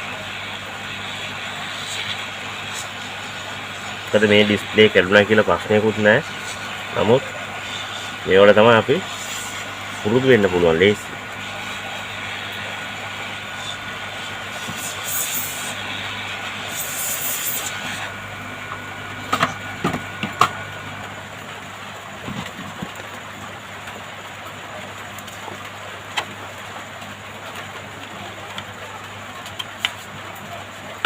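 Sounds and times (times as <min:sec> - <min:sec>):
hot air station whirring hiss: 0:00.0 - 0:24.0.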